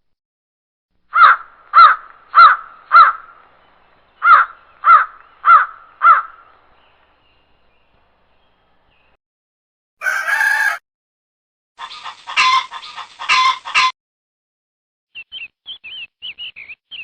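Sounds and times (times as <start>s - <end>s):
crow cawing: 1.1s - 3.4s, 4.2s - 6.5s, 10.0s - 10.8s.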